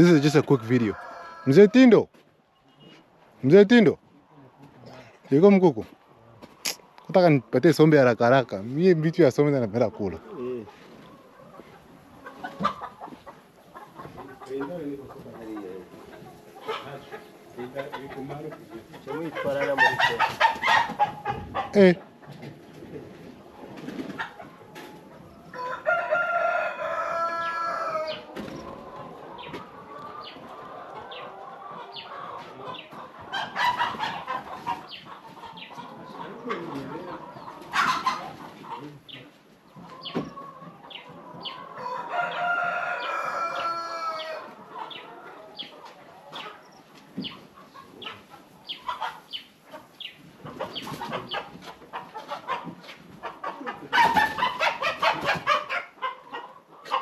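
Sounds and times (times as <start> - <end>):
chickens clucking: 0.0 - 57.0
rooster crowing: 0.3 - 1.9, 25.4 - 28.3, 41.8 - 44.5.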